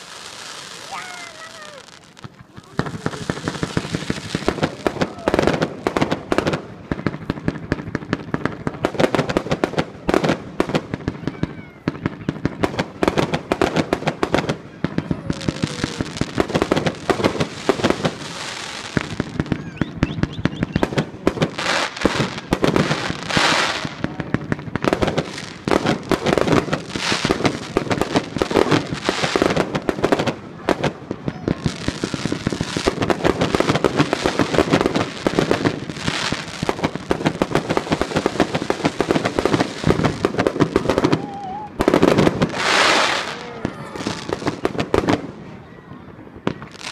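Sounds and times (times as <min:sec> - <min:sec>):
hissing crackle: 0:00.0 - 0:05.8
fireworks and firecrackers banging: 0:00.0 - 0:46.9.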